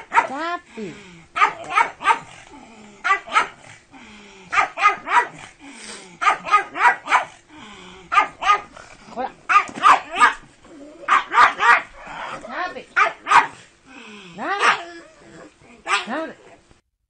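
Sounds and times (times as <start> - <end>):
dog barking excitedly: 0.0 - 0.5, 1.3 - 2.4, 3.0 - 3.7, 4.5 - 5.6, 6.2 - 7.4, 8.1 - 8.8, 9.4 - 10.5, 11.1 - 13.7, 14.4 - 14.9, 15.8 - 16.4.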